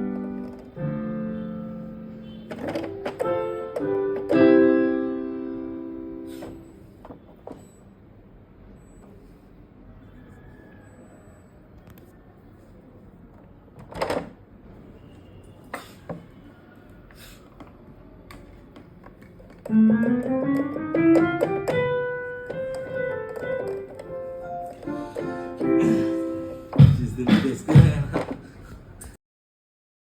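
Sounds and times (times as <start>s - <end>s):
keyboard playing piano notes: 0.0s - 7.0s, 19.5s - 28.4s
knocks: 19.9s - 21.9s.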